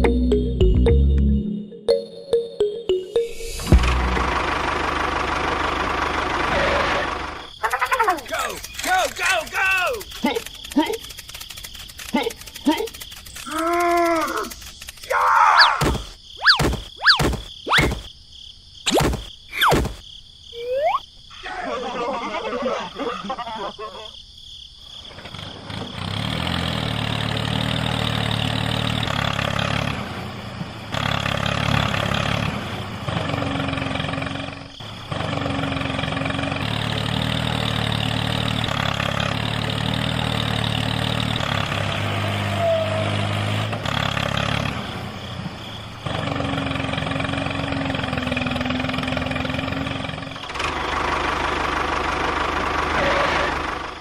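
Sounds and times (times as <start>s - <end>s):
engine running: 2.7s - 15.0s, 25.3s - 54.0s.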